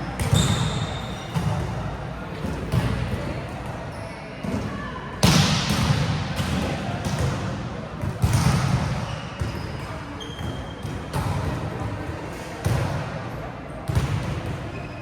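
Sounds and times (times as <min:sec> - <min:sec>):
volleyball hits echoing in hall: 0:00.0 - 0:15.0.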